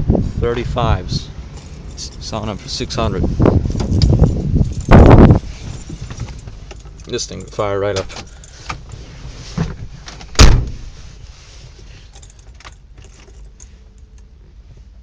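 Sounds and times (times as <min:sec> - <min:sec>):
low steady rumble: 0:00.0 - 0:15.0
keys jingling: 0:03.6 - 0:05.1, 0:06.2 - 0:09.0, 0:12.0 - 0:14.3
truck door slamming: 0:09.6 - 0:11.0.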